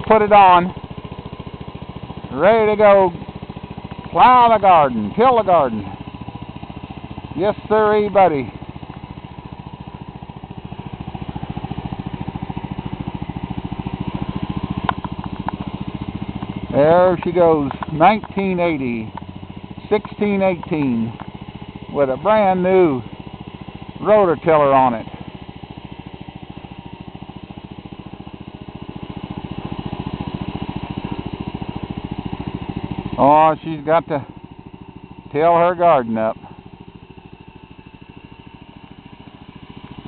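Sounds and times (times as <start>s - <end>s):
garden tractor engine running: 0.0s - 40.0s
light ticks: 14.8s - 15.7s, 17.2s - 18.4s, 20.0s - 21.4s.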